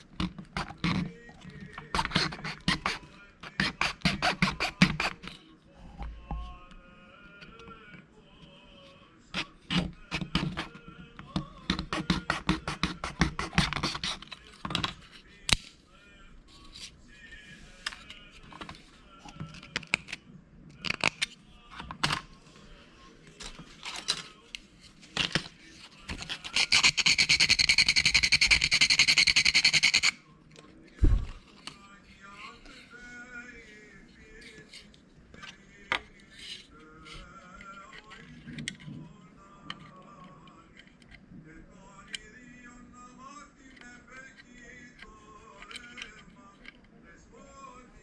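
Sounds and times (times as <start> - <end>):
fast rasping of plastic: 0.0 - 5.4, 11.7 - 14.5, 26.1 - 30.2
plastic parts clicking and scraping: 0.0 - 5.4, 17.8 - 22.3, 23.3 - 28.0, 34.4 - 41.2, 45.6 - 46.9.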